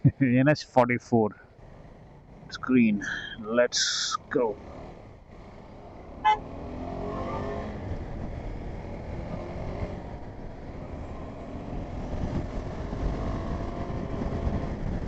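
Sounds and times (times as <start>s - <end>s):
motorcycle engine accelerating: 1.5s - 15.0s
wind rumble on microphone: 7.3s - 15.0s.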